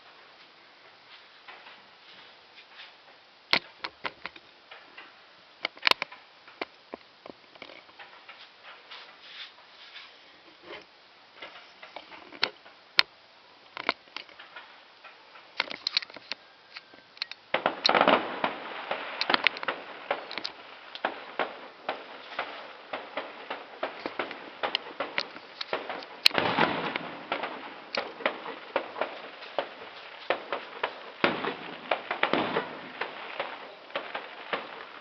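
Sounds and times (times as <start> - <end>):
fireworks popping and crackling: 0.0 - 35.0.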